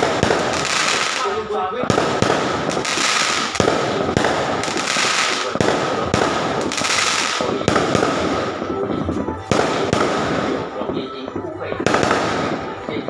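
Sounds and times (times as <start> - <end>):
crackling hiss: 0.0 - 8.6
fireworks popping and banging: 0.0 - 13.0.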